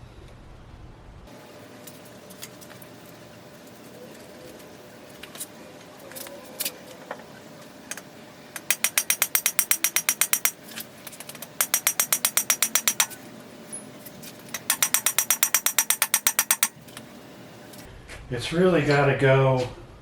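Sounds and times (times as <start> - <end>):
ratchet wrench clicking: 8.6 - 13.2, 14.5 - 16.8.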